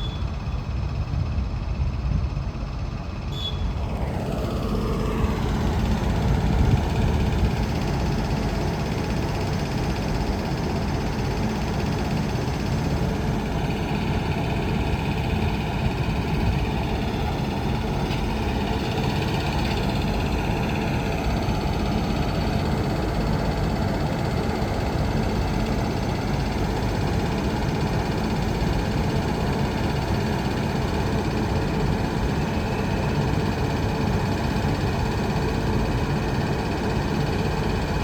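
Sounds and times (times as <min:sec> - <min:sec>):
faint high squeal: 0:00.0 - 0:00.6, 0:03.3 - 0:03.8
freight train wheels rumbling on rail: 0:00.0 - 0:38.0.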